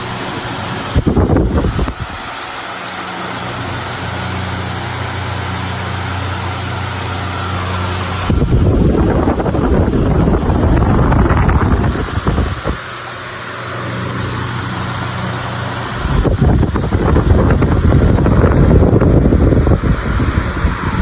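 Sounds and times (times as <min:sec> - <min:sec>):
wind buffeting microphone: 0:00.0 - 0:02.4, 0:08.1 - 0:13.1, 0:15.5 - 0:21.0
fan air rush and motor hum: 0:00.0 - 0:21.0.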